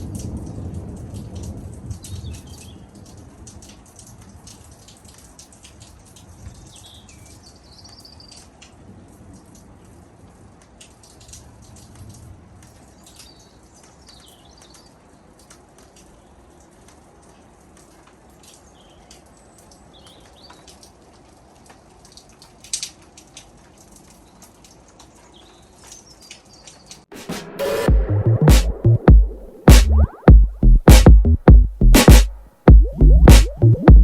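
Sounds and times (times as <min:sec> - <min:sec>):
light rain: 0:00.0 - 0:30.7
drips and patters: 0:00.0 - 0:34.0
electronic music: 0:27.1 - 0:34.0
sharp tap: 0:27.2 - 0:34.0.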